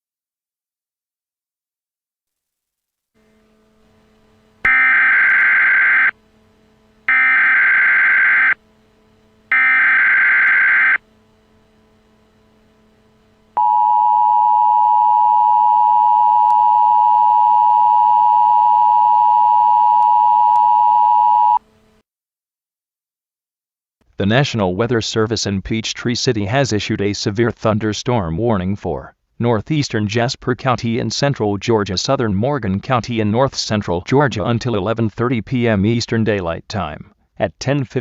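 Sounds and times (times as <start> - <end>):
two-tone alert signal: 4.7 - 6.1, 9.5 - 11.0.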